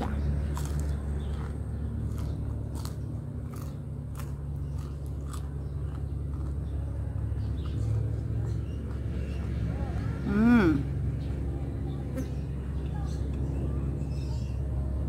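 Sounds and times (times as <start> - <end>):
crunchy chewing: 0.0 - 9.7
low background hum: 0.0 - 15.0.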